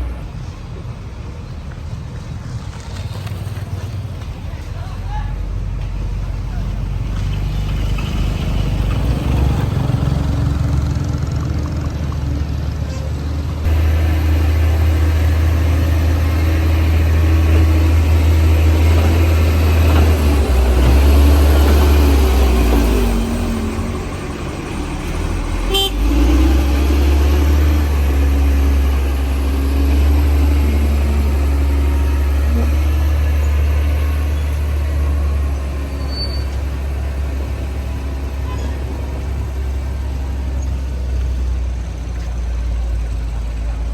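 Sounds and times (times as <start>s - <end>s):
bulldozer diesel engine running: 0.0s - 43.9s.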